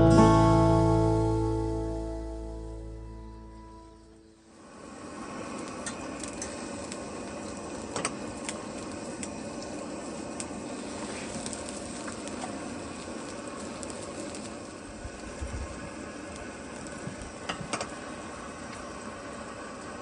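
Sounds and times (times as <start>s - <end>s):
meat sizzling on a grill: 4.4s - 20.0s.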